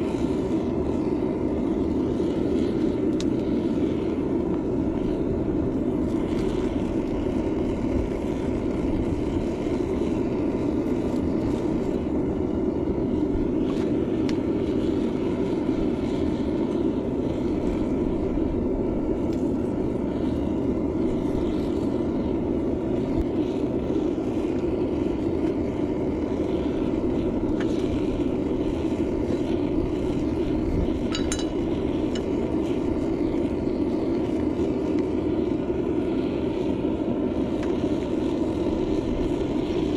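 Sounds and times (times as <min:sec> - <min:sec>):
furnace rushing drone: 0:00.0 - 0:39.9
metallic clink: 0:31.1 - 0:31.6.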